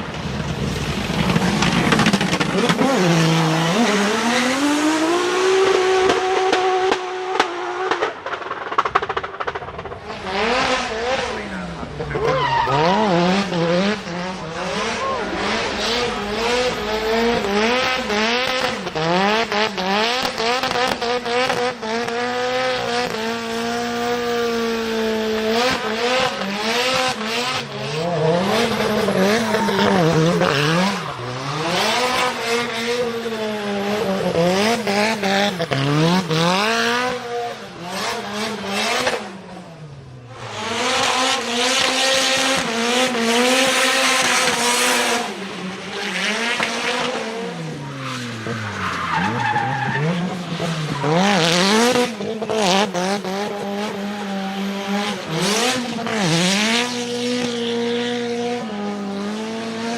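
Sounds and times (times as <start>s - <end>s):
car engine revving hard: 1.3s - 8.3s, 10.0s - 39.6s, 40.2s - 47.8s, 48.4s - 59.9s
tyres squealing: 12.2s - 13.1s.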